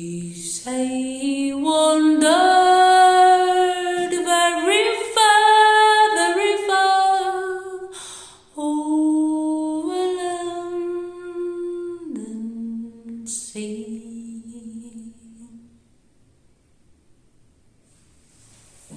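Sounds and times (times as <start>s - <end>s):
woman singing unaccompanied: 0.0s - 8.0s, 8.6s - 15.7s.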